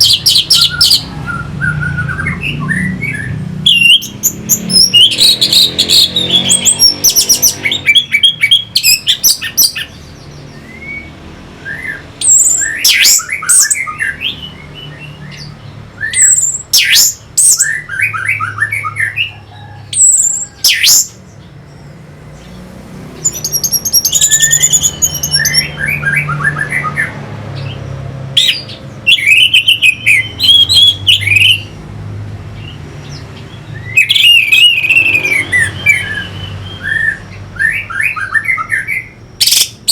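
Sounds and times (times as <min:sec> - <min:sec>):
bird singing whistled phrases: 0:00.0 - 0:09.9, 0:10.5 - 0:21.2, 0:23.2 - 0:27.1, 0:28.4 - 0:31.7, 0:33.6 - 0:39.9.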